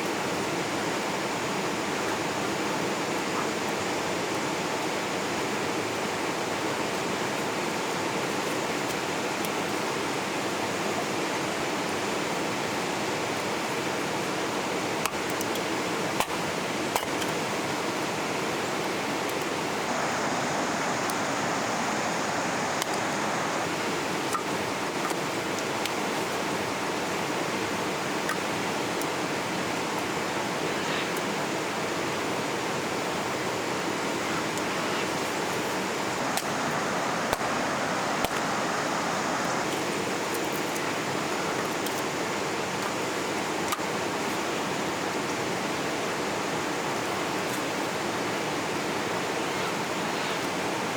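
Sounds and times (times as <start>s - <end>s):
river water rushing: 0.1s - 50.9s.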